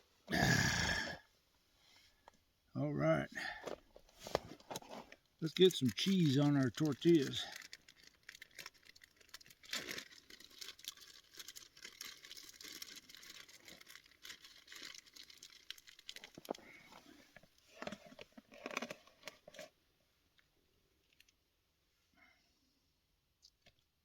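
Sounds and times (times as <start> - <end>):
plastic food wrapping crinkling: 4.5 - 19.8.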